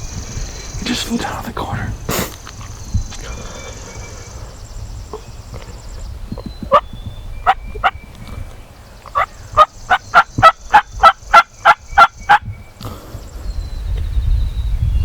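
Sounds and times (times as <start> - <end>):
low wind rumble: 0.0 - 15.0
songbird chirps: 0.0 - 15.0
turkey yelps: 6.6 - 6.8, 9.1 - 12.4.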